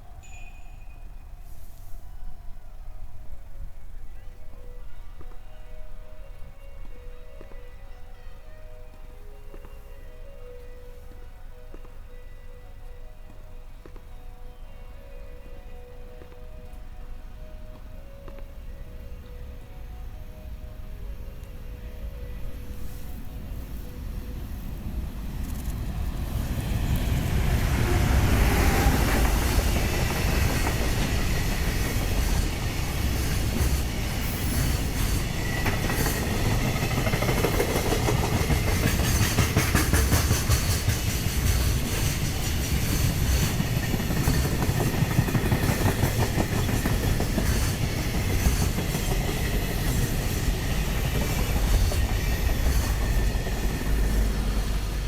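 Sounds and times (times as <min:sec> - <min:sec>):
train wheels clattering over joints: 0:24.9 - 0:55.0.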